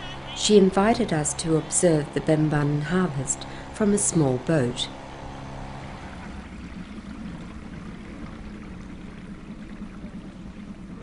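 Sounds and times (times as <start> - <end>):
low steady hum: 0.0 - 11.0
water lapping around boat: 0.0 - 11.0.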